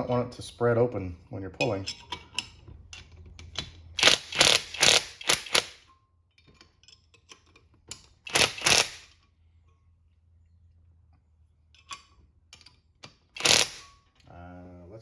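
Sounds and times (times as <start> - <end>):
ratchet wrench strokes: 4.0 - 5.8, 8.3 - 9.1, 13.4 - 13.9.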